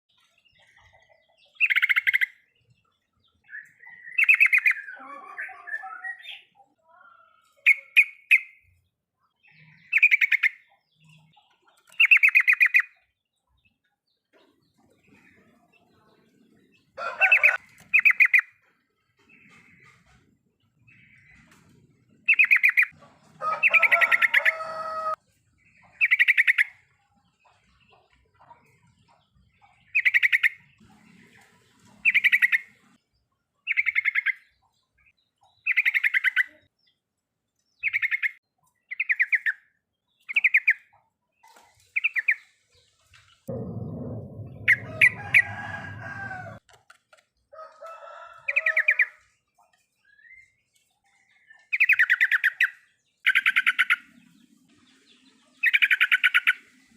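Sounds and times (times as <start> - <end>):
low rumble: 43.5 - 46.6.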